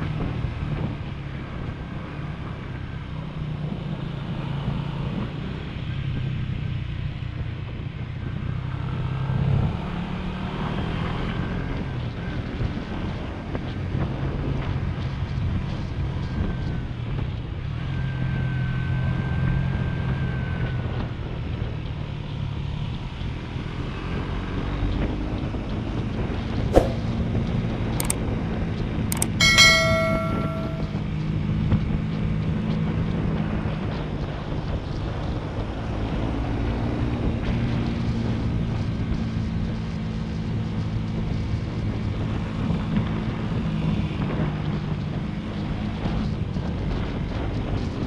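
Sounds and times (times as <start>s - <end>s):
sharp clicks: 29.1s - 29.6s
horn beep: 29.2s - 31.0s.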